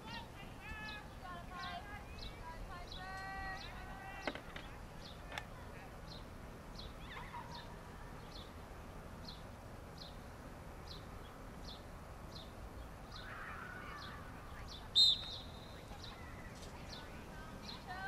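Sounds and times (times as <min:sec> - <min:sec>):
small bird chirping: 0:09.2 - 0:18.0
referee's whistle blast: 0:15.0 - 0:15.5.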